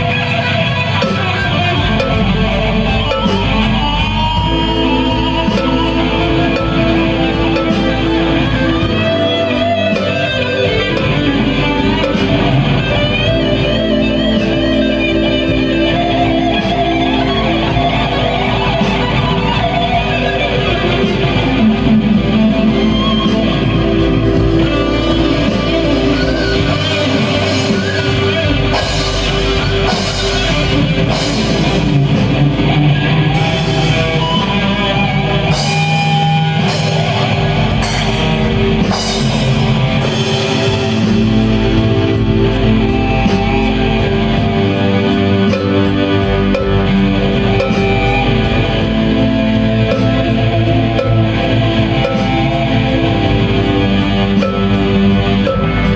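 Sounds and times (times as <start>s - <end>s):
bass: 0.0s - 55.9s
drums: 0.0s - 55.9s
electric guitar: 0.0s - 55.9s
cymbal crashes: 18.5s - 49.1s.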